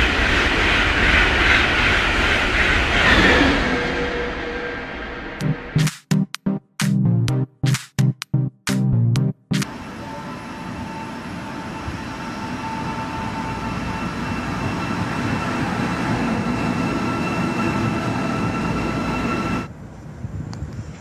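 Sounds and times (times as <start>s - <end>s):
electric train passing: 0.0s - 5.8s, 9.6s - 20.0s.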